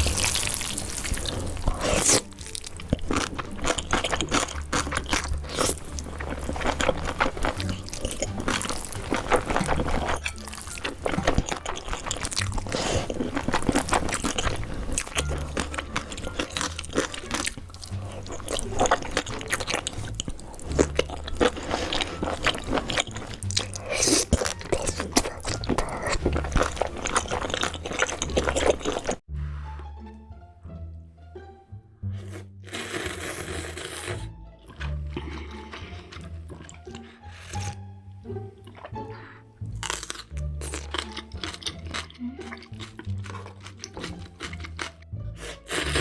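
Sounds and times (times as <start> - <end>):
crunching and chewing: 0.0 - 29.2, 32.7 - 37.8, 38.6 - 46.0
background music bass notes: 0.0 - 46.0.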